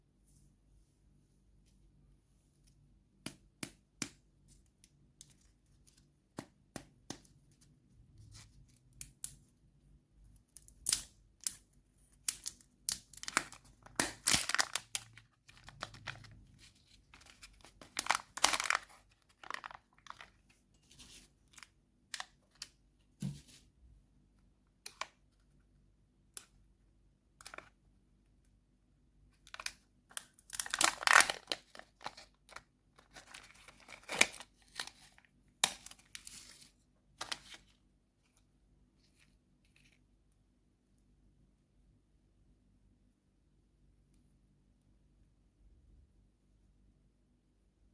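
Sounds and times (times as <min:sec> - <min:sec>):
candy wrappers crinkling and tearing: 0:12.2 - 0:20.5, 0:29.5 - 0:36.5.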